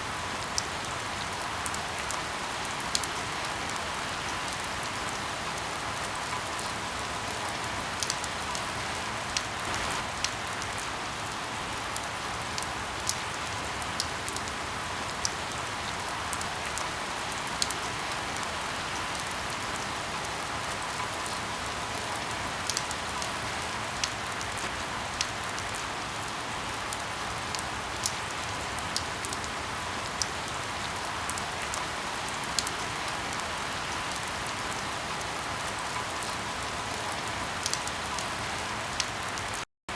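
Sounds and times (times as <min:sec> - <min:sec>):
rain falling: 0:00.0 - 0:39.6
firewood crackling: 0:09.4 - 0:10.3.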